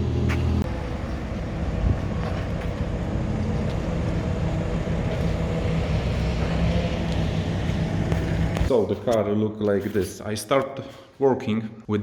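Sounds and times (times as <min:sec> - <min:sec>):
vehicle engine droning: 0:00.0 - 0:08.7.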